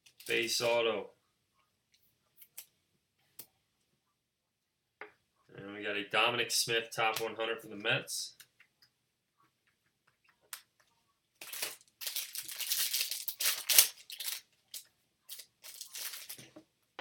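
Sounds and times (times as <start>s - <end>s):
foil wrapper tearing and crinkling: 11.4s - 16.5s.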